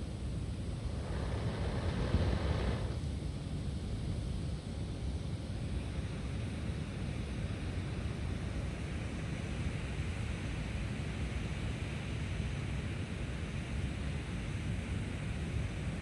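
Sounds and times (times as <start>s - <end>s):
rushing air rumbling: 0.7s - 3.0s.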